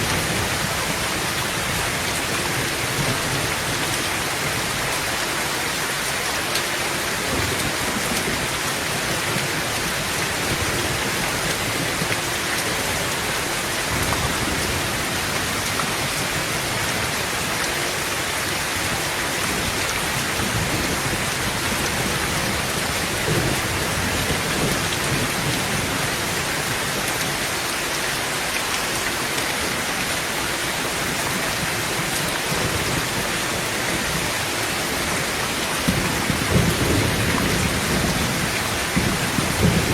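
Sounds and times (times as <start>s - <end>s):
low thunder rumbling: 0.0s - 5.0s, 18.8s - 26.8s, 31.6s - 39.9s
heavy rain on a tin roof: 0.0s - 39.9s.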